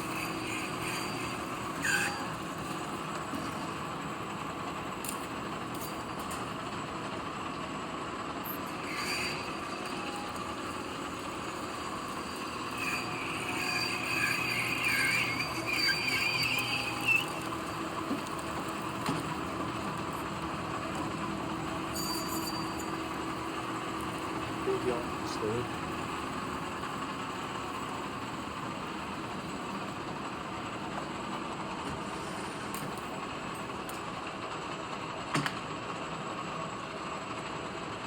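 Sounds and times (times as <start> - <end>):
high-pitched squeal: 0.0 - 3.5, 8.4 - 18.8, 21.7 - 28.3
metal lathe humming: 0.0 - 33.7.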